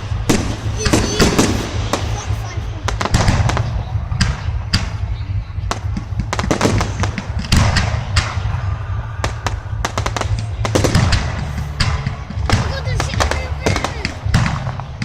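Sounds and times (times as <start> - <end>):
fireworks bangs and crackles: 0.0 - 15.0
low rumble: 0.0 - 15.0.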